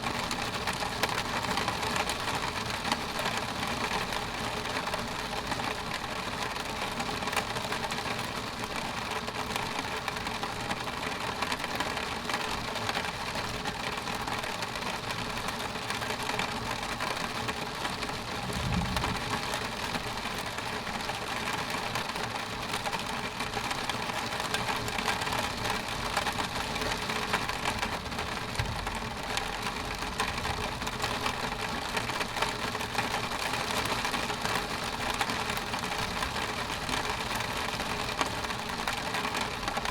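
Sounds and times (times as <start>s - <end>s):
hiss of rainfall: 0.0s - 39.9s
low rumble: 18.2s - 20.0s.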